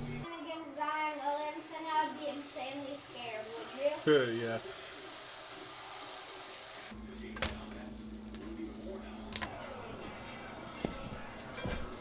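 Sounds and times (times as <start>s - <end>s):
food sizzling in a frying pan: 1.0s - 9.5s.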